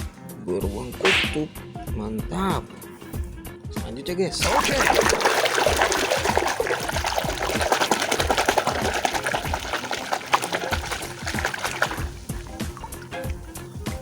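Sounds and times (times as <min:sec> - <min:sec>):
running water splashing: 0:04.4 - 0:14.0.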